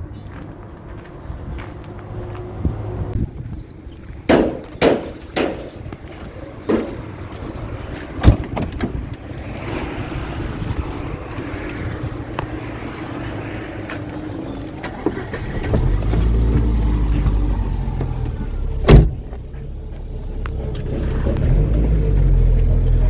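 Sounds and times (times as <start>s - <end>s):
car engine running: 6.7s - 23.0s
loud thump: 18.9s - 19.2s.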